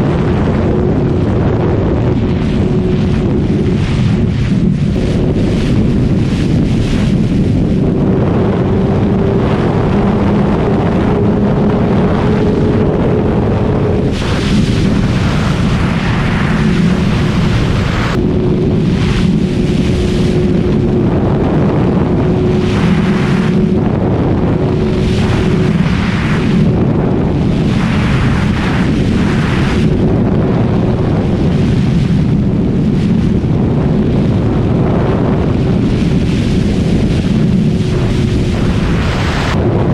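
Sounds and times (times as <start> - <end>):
motorcycle engine running: 0.0 - 31.2
wind buffeting microphone: 0.0 - 39.9.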